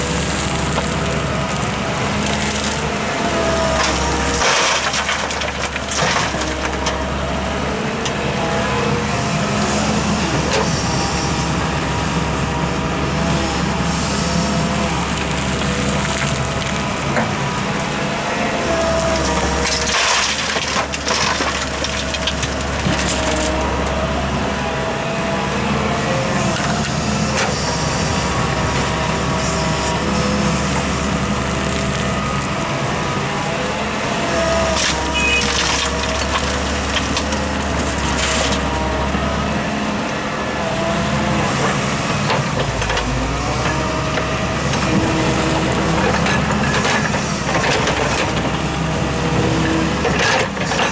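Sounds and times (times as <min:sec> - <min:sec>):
diesel machinery running: 0:00.0 - 0:50.9.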